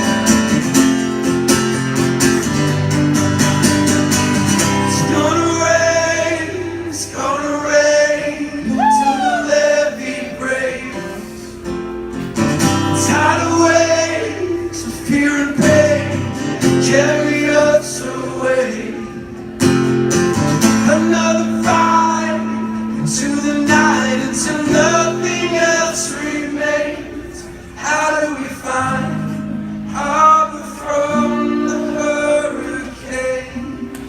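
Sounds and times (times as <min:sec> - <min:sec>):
acoustic guitar strumming: 0:00.0 - 0:34.0
person singing: 0:08.2 - 0:11.5.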